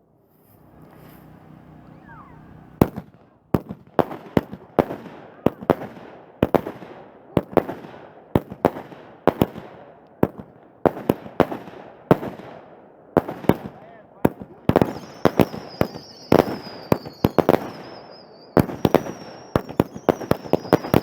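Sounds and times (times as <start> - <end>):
fireworks banging: 0.4 - 21.0.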